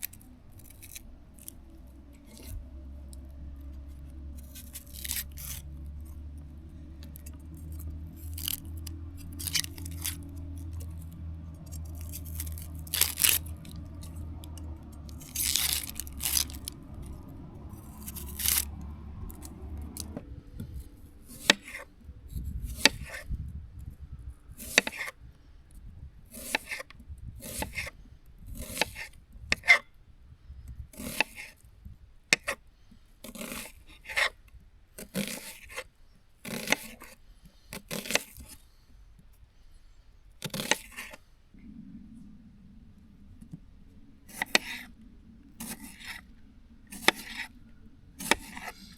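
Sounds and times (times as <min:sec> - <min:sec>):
knife cutting on wooden board: 0:22.7 - 0:23.2, 0:24.6 - 0:25.1, 0:26.3 - 0:27.9, 0:28.6 - 0:29.8, 0:31.0 - 0:31.5, 0:33.3 - 0:34.3, 0:35.0 - 0:35.8, 0:36.4 - 0:37.2, 0:37.8 - 0:38.6, 0:40.4 - 0:41.2, 0:44.3 - 0:44.9, 0:45.6 - 0:46.2, 0:46.9 - 0:47.5, 0:48.2 - 0:48.9.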